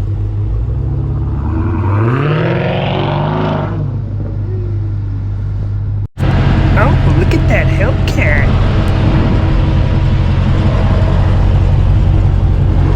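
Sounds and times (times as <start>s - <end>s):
car engine idling and revving: 0.0s - 12.9s.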